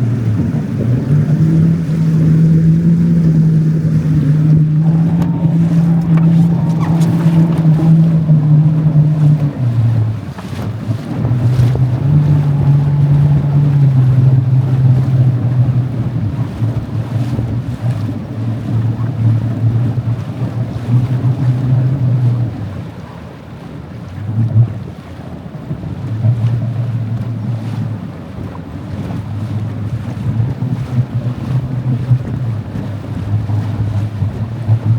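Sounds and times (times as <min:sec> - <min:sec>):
motor running: 0:01.0 - 0:10.0.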